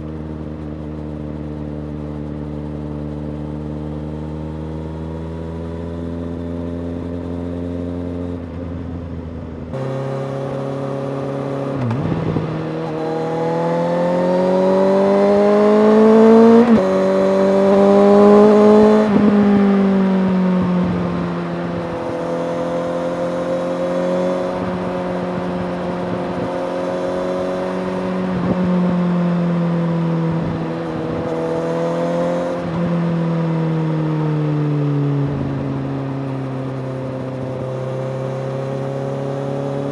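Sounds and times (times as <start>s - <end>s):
motorcycle engine revving: 9.7s - 39.9s.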